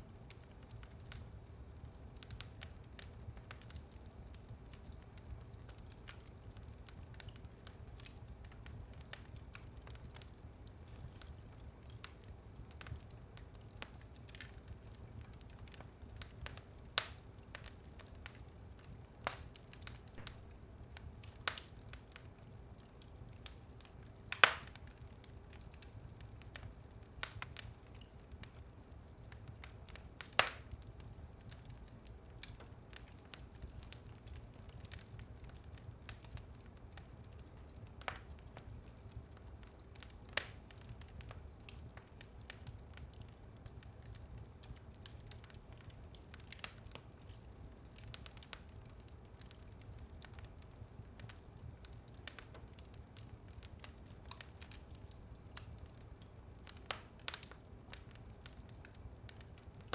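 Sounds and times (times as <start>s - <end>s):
wood fire crackling: 0.0s - 59.9s
fire pops: 19.2s - 22.2s, 24.3s - 28.5s, 29.4s - 43.1s, 56.6s - 59.9s.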